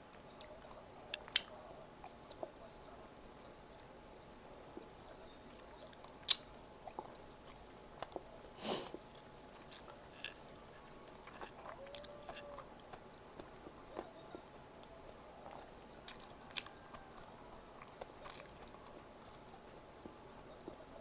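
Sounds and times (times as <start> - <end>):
person chewing: 5.8 - 19.7.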